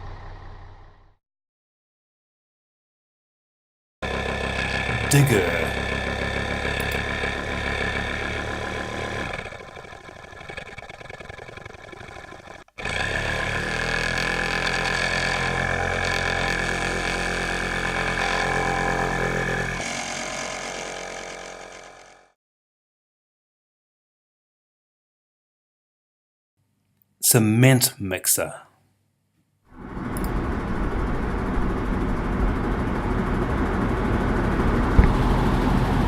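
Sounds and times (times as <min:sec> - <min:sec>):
digger engine running: 0:00.0 - 0:01.2, 0:04.0 - 0:22.4, 0:29.8 - 0:36.0.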